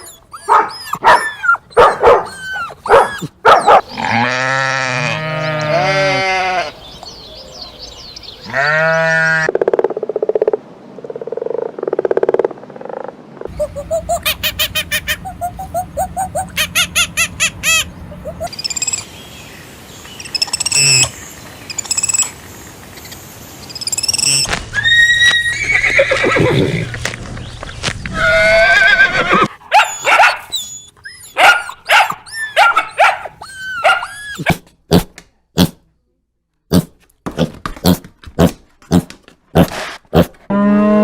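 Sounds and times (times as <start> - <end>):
horse whinnying: 24.8 - 27.0, 28.1 - 29.6.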